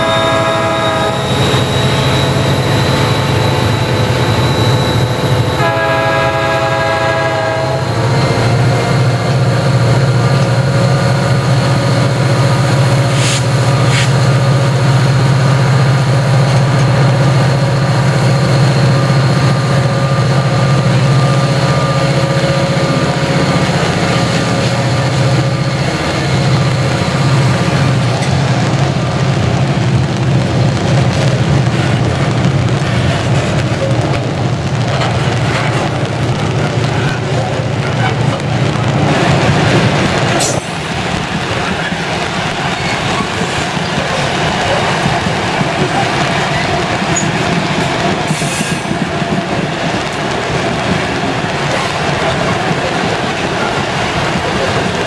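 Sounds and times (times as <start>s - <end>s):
train air horn: 0.0s - 1.5s, 5.6s - 8.0s
train wheels rolling: 0.0s - 55.0s.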